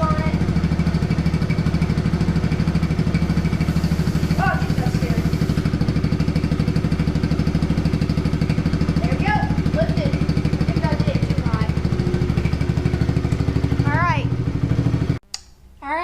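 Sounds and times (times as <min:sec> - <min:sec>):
dirt bike engine idling: 0:00.0 - 0:15.2.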